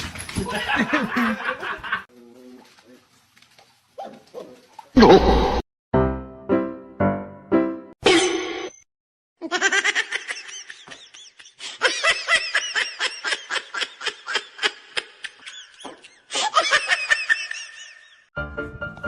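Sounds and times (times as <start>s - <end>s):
person laughing hard: 0.4s - 2.0s, 9.4s - 18.2s.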